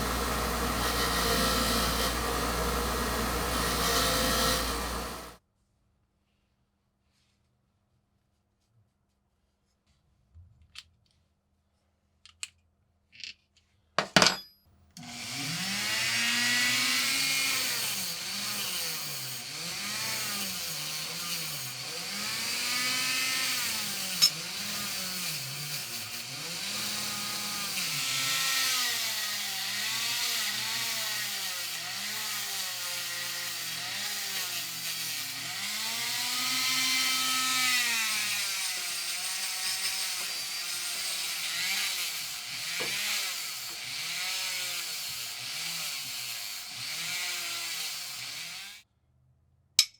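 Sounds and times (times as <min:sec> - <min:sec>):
electric power tool grinding: 0:00.0 - 0:05.4, 0:15.0 - 0:48.8.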